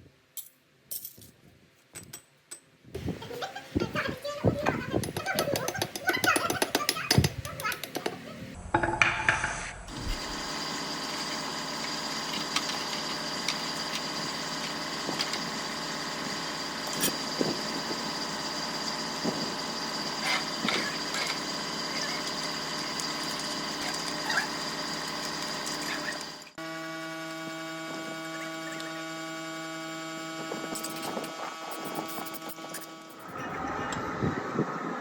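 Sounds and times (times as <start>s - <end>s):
machine running with high whine: 9.7s - 35.0s.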